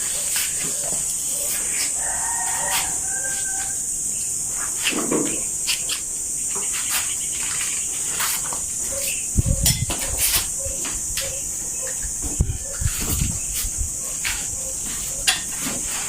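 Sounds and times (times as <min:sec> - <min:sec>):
crickets droning: 0:00.0 - 0:16.0.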